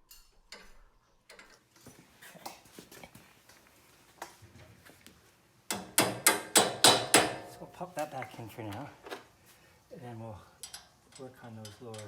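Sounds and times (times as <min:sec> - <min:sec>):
faint clicks and metal knocks: 0:00.0 - 0:02.6, 0:10.6 - 0:12.0.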